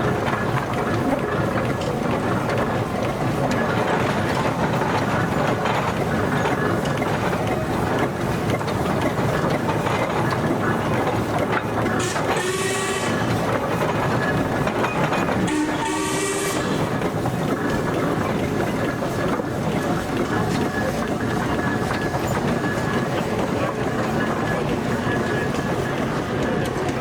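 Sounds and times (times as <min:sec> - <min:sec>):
steam engines clanking and chuffing: 0:00.0 - 0:27.0
steam whistle: 0:12.0 - 0:13.4, 0:15.4 - 0:16.9.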